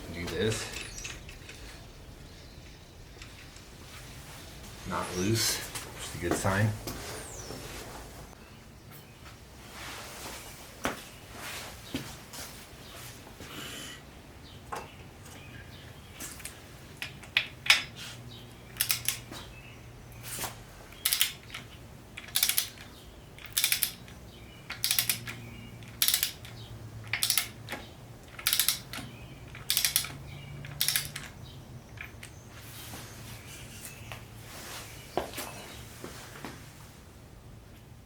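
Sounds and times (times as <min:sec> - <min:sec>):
ratchet wrench clicking: 0:18.7 - 0:19.3, 0:21.0 - 0:31.3.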